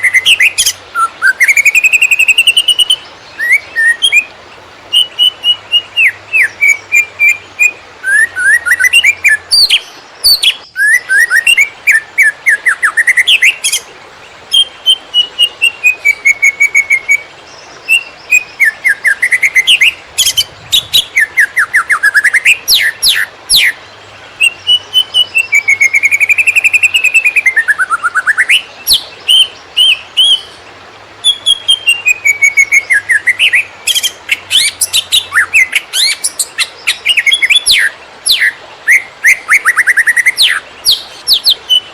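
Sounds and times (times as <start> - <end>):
bird singing fast whistled notes: 0.0 - 4.3, 4.9 - 13.8, 31.2 - 41.9.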